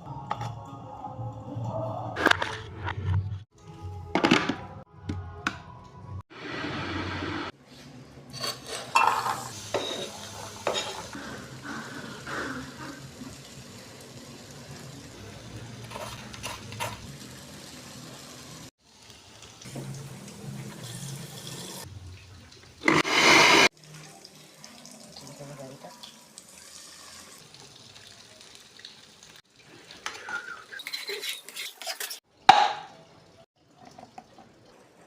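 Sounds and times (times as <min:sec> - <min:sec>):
utensils clinking on dishes: 0:08.3 - 0:11.2, 0:30.7 - 0:32.2.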